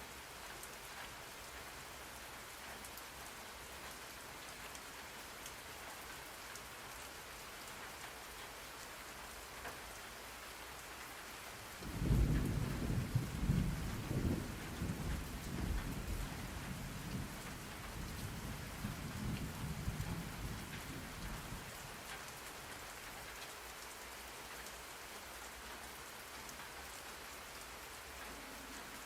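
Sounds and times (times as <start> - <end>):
rain falling: 0.0 - 29.0
rolling thunder rumble: 11.8 - 21.7.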